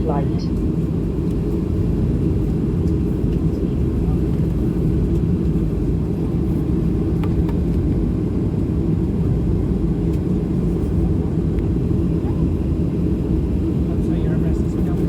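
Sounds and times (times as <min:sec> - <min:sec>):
airliner cabin engine drone: 0:00.0 - 0:15.0.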